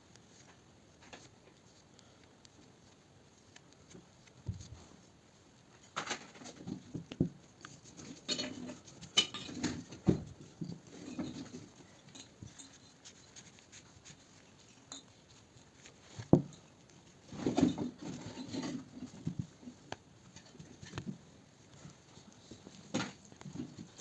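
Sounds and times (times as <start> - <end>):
soft rustling: 0.0 - 24.0.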